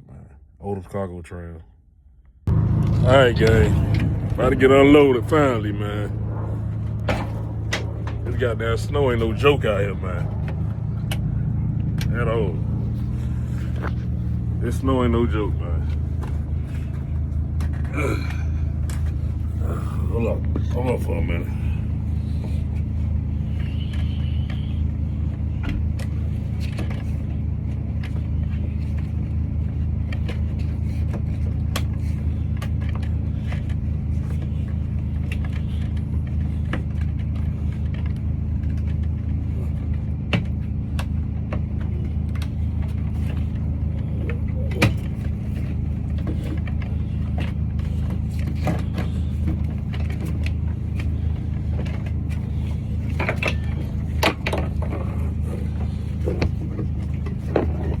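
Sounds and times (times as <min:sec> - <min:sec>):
engine idling: 0:02.4 - 0:58.0.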